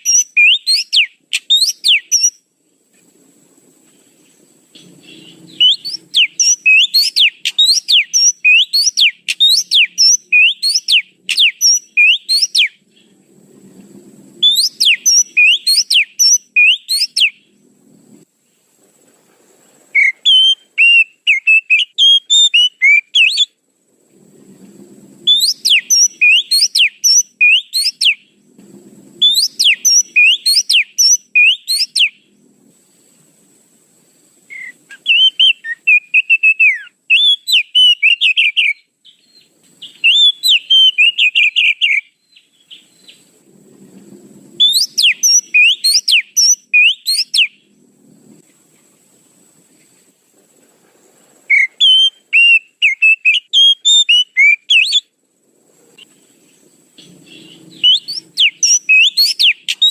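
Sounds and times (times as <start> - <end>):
bird whistled notes: 0.0 - 2.4, 4.8 - 12.8, 14.4 - 17.4, 20.0 - 23.5, 25.2 - 28.2, 29.2 - 32.2, 34.5 - 43.3, 44.6 - 47.6, 51.5 - 55.1, 57.0 - 59.9
lower bird warbling: 0.0 - 2.4, 4.2 - 13.8, 14.4 - 17.6, 19.9 - 23.5, 24.4 - 28.4, 29.1 - 32.5, 34.5 - 47.9, 51.5 - 55.1, 56.0 - 59.9.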